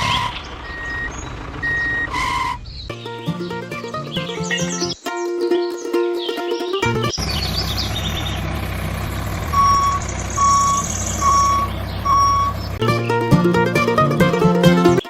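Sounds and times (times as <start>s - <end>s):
reversing alarm beeping: 0.0s - 2.6s, 9.5s - 12.7s
vehicle engine running: 0.0s - 5.0s, 6.8s - 15.0s
music: 2.9s - 7.2s, 12.8s - 15.0s.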